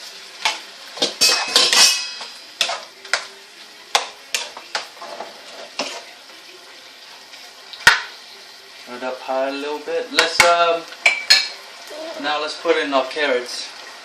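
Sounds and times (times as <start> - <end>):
utensil scraping against pan: 4.0 - 6.1.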